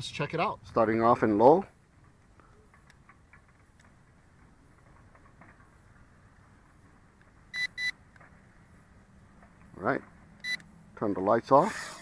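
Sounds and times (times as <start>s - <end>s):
high electronic beeps: 7.6s - 7.9s.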